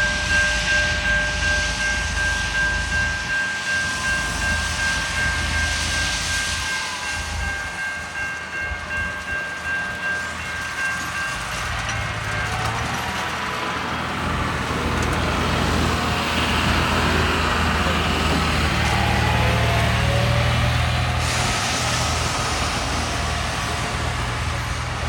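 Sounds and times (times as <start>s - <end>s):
steady high tone: 0.0s - 14.0s
diesel engine running: 11.6s - 25.0s
hissing scraping noise: 21.0s - 25.0s.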